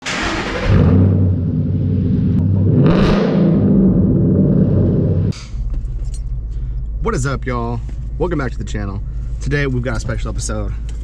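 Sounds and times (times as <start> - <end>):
car engine revving through exhaust: 0.1 - 5.4
low steady drone: 1.0 - 9.4.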